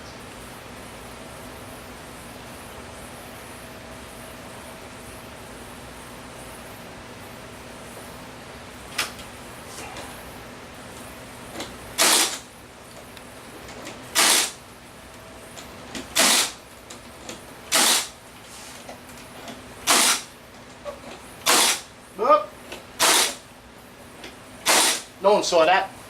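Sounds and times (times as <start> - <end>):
bursts of hissing: 24.6 - 25.1.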